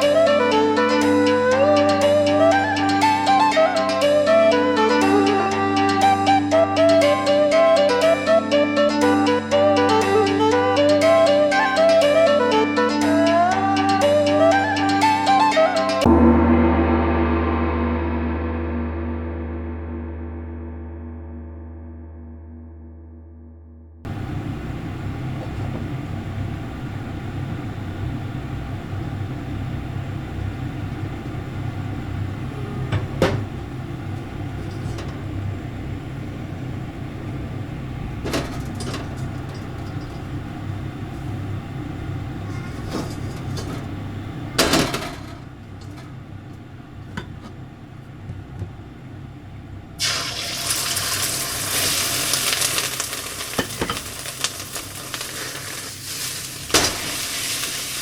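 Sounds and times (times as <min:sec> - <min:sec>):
low hum: 0:00.0 - 0:57.7
utensils clinking on cookware: 0:34.6 - 0:35.2, 0:38.2 - 0:40.3, 0:42.5 - 0:43.9, 0:53.4 - 0:55.7
food sizzling in a hot pan: 0:50.0 - 0:58.0.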